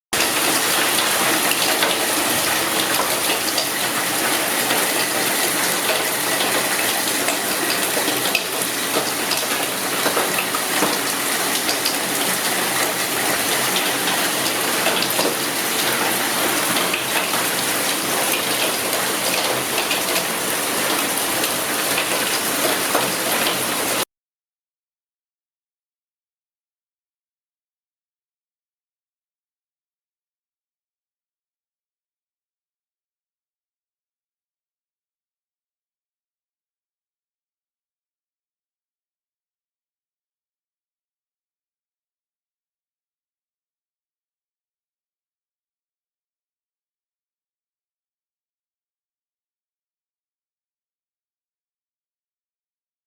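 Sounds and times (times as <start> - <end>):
heavy rain: 0.2 - 24.0.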